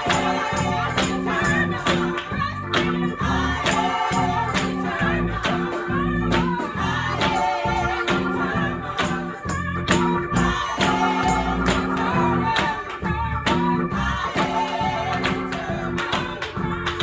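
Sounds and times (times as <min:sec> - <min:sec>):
person singing: 0:00.0 - 0:02.6
guitar and bass: 0:00.0 - 0:17.0
percussion beat: 0:00.0 - 0:17.0.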